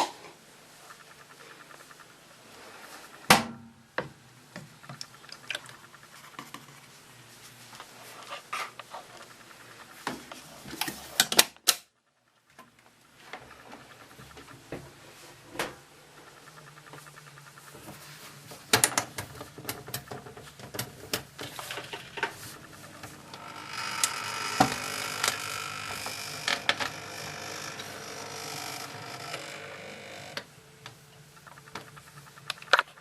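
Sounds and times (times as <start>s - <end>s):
washing machine humming: 13.2s - 32.4s.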